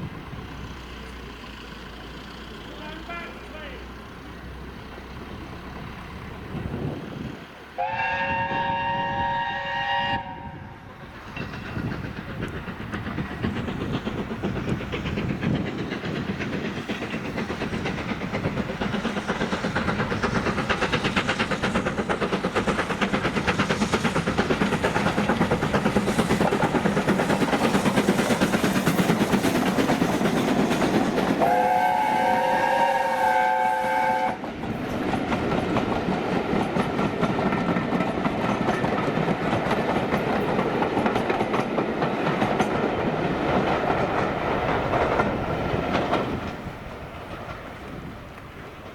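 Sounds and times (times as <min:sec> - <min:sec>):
train passing with rhythmic beat: 0:00.0 - 0:48.9
train whistle blast: 0:07.8 - 0:10.8, 0:31.4 - 0:34.4.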